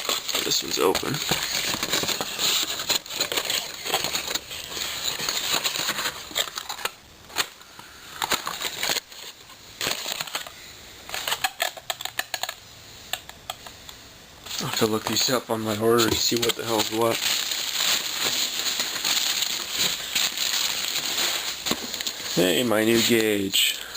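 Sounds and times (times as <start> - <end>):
packaging crinkling: 0.0 - 12.6, 14.4 - 23.9
parts clicking and knocking: 11.1 - 14.0.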